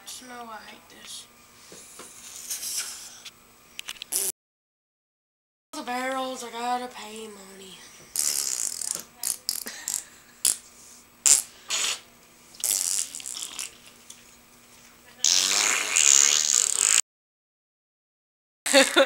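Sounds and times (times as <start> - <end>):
children making mouth fart noises: 4.1 - 4.3, 8.1 - 10.6, 11.2 - 13.8, 15.2 - 17.0.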